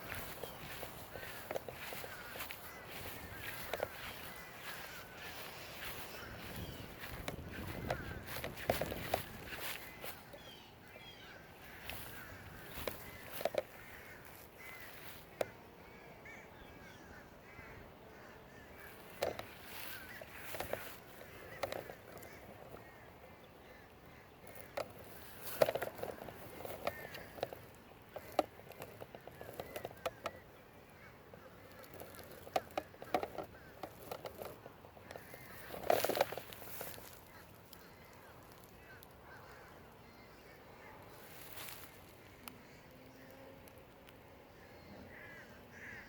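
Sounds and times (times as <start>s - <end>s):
crows cawing: 0.0s - 43.2s, 44.6s - 46.0s
birds chirping: 0.0s - 46.0s
waterfowl honking: 45.0s - 46.0s.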